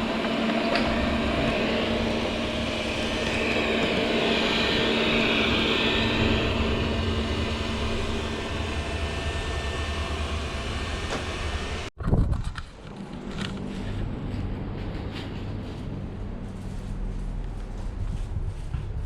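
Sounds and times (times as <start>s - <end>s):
robot vacuum cleaner humming: 0.0s - 11.9s.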